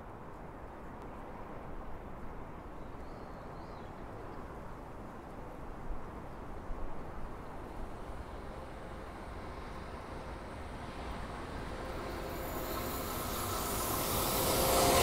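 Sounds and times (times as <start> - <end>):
distant train rumble: 6.0 - 15.0.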